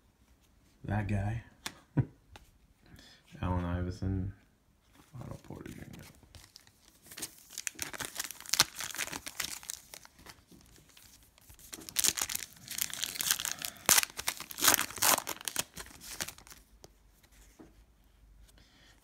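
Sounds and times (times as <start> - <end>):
foil wrapper crinkling and tearing: 6.3 - 16.7.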